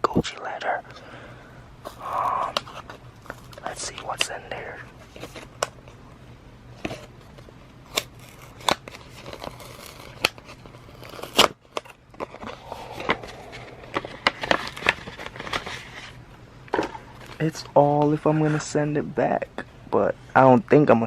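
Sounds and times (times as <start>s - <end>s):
paper crinkling and rustling: 6.8s - 16.2s.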